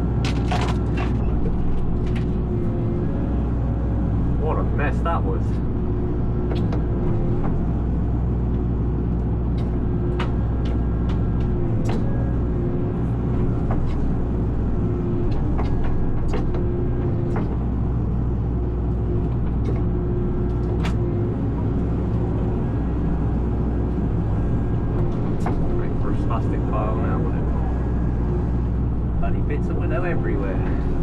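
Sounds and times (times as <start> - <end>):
excavator engine running: 0.0 - 31.0
branches cracking and snapping: 0.2 - 1.2.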